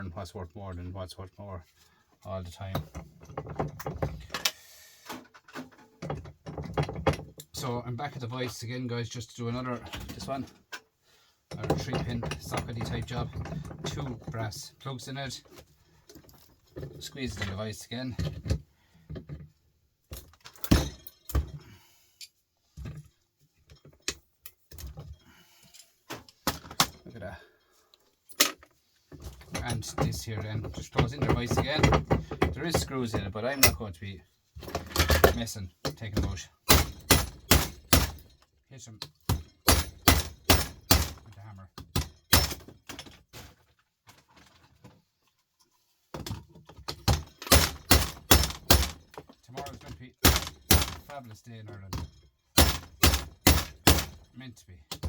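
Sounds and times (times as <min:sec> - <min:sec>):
plastic casing knocks and rattles: 0:02.7 - 0:04.4, 0:05.4 - 0:07.4, 0:18.2 - 0:21.6, 0:29.2 - 0:33.8, 0:34.6 - 0:38.4, 0:39.1 - 0:43.4, 0:46.1 - 0:51.2, 0:51.8 - 0:54.3.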